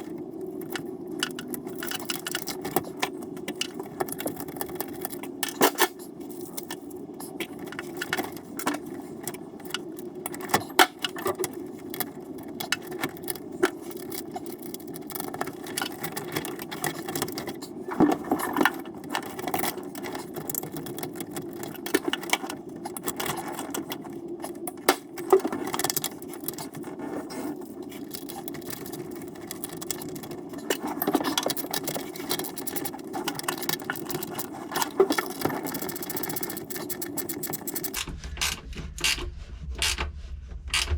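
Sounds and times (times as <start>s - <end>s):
low hum: 37.9s - 40.9s.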